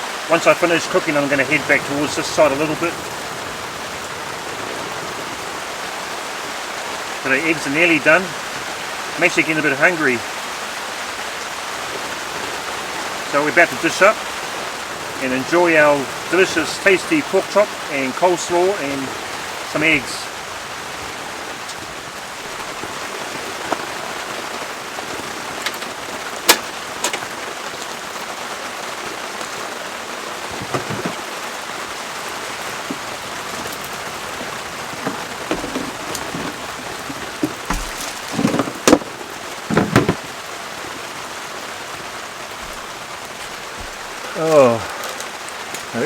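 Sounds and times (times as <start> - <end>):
heavy rain on a tarp: 0.0 - 46.0
sharp clicks and knocks: 33.7 - 40.3.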